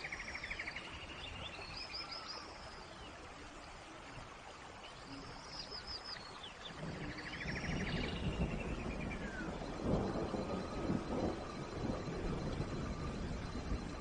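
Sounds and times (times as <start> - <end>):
steady rain: 0.0 - 14.0
birds chirping: 4.8 - 14.0.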